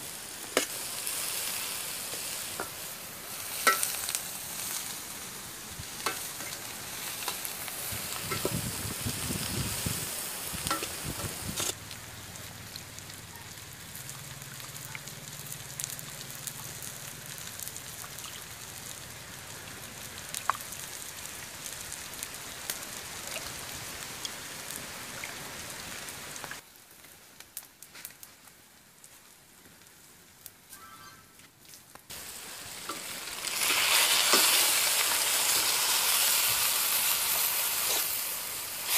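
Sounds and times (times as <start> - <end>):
hot oil sizzling in a wok: 0.0 - 26.6, 32.1 - 38.9.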